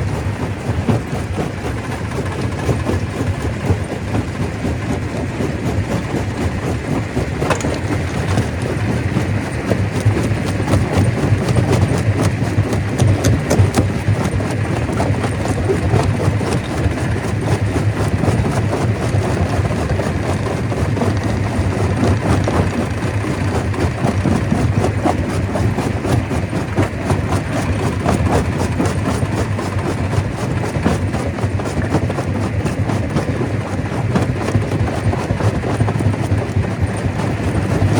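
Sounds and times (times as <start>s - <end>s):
stone crusher rumbling: 0.0s - 37.9s
rock knocking and cracking: 0.7s - 25.5s.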